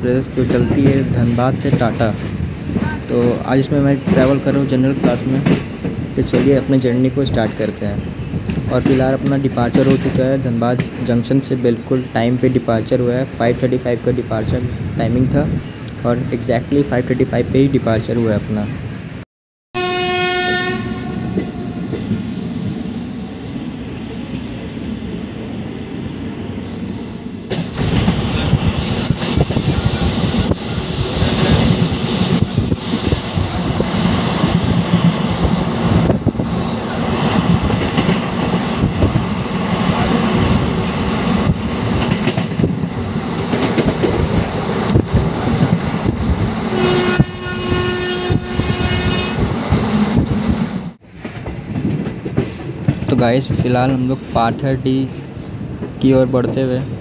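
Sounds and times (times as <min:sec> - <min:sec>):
train rumbling: 0:00.0 - 0:19.2, 0:19.8 - 0:57.0
wheels clattering over rail joints: 0:00.2 - 0:11.4, 0:30.4 - 0:46.5, 0:49.7 - 0:57.0
locomotive horn: 0:19.8 - 0:21.8, 0:46.7 - 0:50.2.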